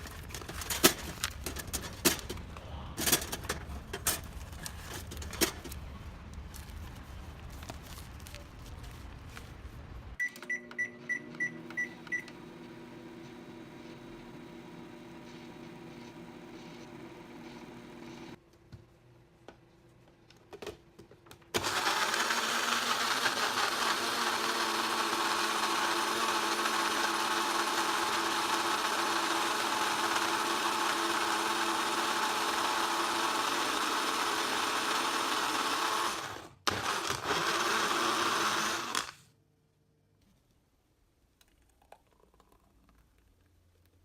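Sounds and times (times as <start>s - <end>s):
electric blender motor running: 21.6s - 39.2s.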